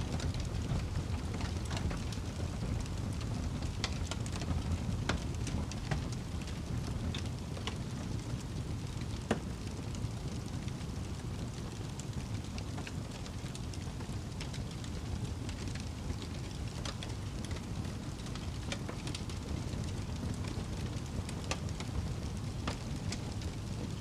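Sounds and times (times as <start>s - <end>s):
fire burning in fireplace: 0.0s - 24.0s
fire crackles and pops: 0.0s - 24.0s.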